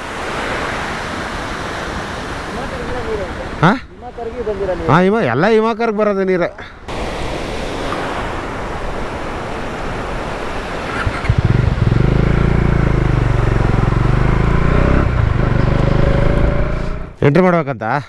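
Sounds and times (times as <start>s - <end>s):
steady rushing noise: 6.9s - 17.2s
motorcycle engine droning: 10.2s - 17.2s.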